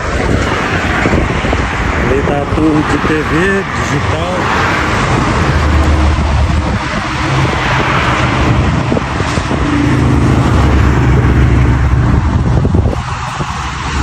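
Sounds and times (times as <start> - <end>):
engine hum: 0.0 - 14.0
road and tyre noise: 0.0 - 14.0.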